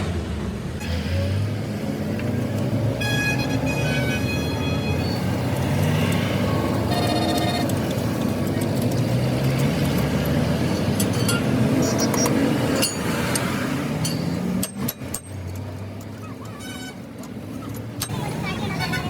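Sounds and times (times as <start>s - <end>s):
voices: 16.0s - 19.0s.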